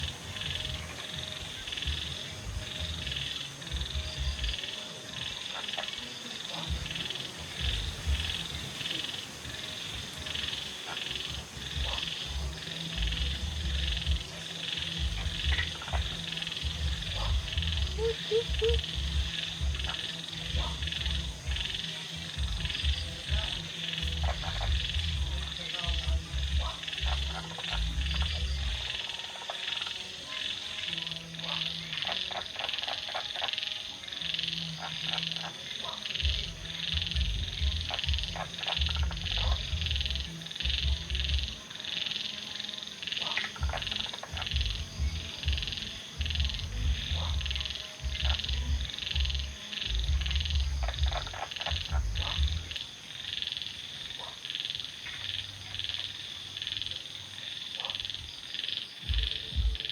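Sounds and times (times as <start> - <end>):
frogs croaking deeply: 0.0 - 59.9
high-pitched trilling: 16.7 - 19.8.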